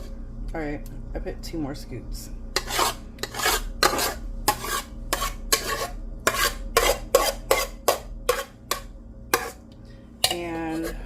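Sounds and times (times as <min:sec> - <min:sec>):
spoon scraping a pot: 0:02.6 - 0:09.6, 0:10.2 - 0:11.0.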